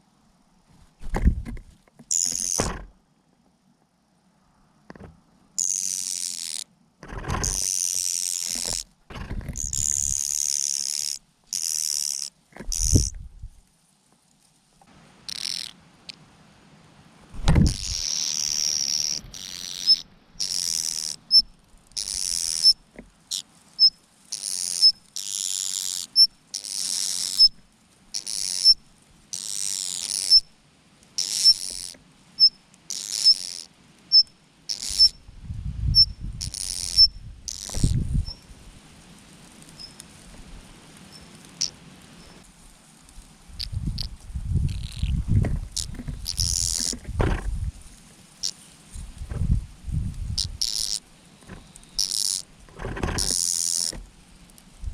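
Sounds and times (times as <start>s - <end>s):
dull thump: 0.8s - 1.7s, 2.3s - 3.0s, 7.0s - 7.6s, 8.6s - 9.6s, 17.4s - 17.9s, 45.3s - 47.8s, 49.2s - 49.6s
mynas harsh hissing calls: 2.1s - 2.8s, 5.6s - 6.7s, 7.4s - 9.0s, 9.6s - 13.1s, 15.2s - 16.2s, 17.6s - 30.5s, 31.2s - 35.3s, 36.0s - 38.6s, 41.1s - 42.5s, 43.5s - 47.0s, 48.2s - 49.0s, 50.3s - 54.4s.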